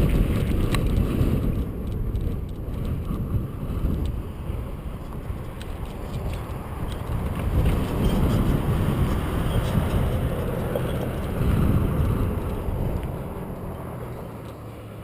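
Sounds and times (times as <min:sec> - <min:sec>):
tyres rolling on path: 0:00.0 - 0:15.0
wind buffeting microphone: 0:00.0 - 0:15.0
faint clicks: 0:05.0 - 0:11.4, 0:12.0 - 0:14.8.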